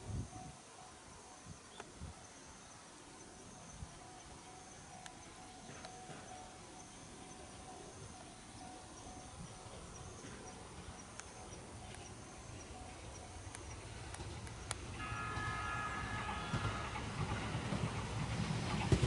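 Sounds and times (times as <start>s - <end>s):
crossing alarm pings: 0.0s - 18.2s
chord of steady high tones: 0.0s - 18.8s
train rumble: 0.0s - 19.0s.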